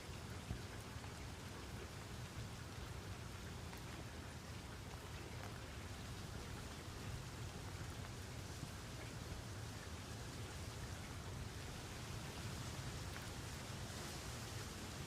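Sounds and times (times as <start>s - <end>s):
steady rain pattering: 0.0s - 15.0s.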